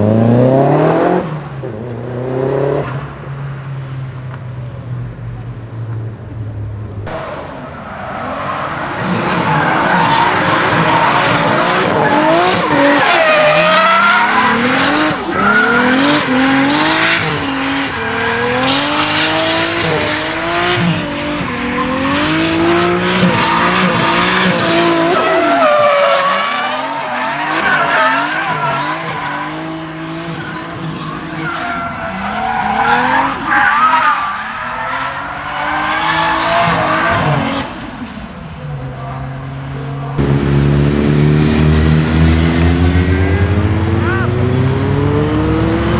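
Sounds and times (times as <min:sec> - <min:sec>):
car engine revving: 0:00.0 - 0:30.2, 0:40.2 - 0:45.9
tyre squeal: 0:23.3 - 0:29.3.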